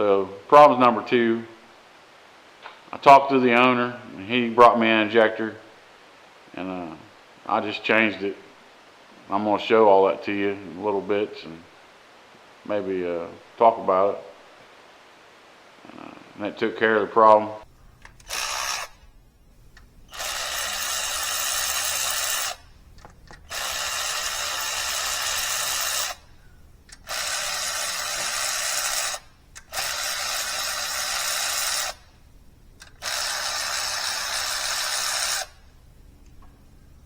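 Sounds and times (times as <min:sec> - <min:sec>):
power drill running: 0:17.9 - 0:32.2, 0:32.8 - 0:35.8.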